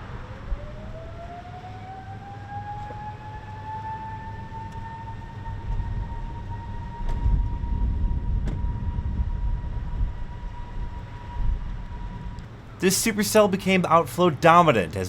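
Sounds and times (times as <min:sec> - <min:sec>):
rising warning siren: 0:00.0 - 0:14.6
gusty low rumble: 0:04.3 - 0:12.8.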